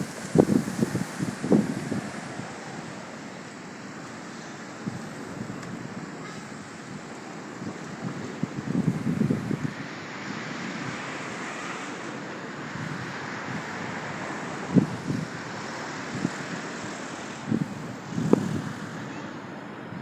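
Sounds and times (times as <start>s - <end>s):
wind buffeting microphone: 0.0s - 3.2s, 4.8s - 9.9s, 12.6s - 20.0s
distant traffic: 0.0s - 20.0s
wind: 0.0s - 20.0s.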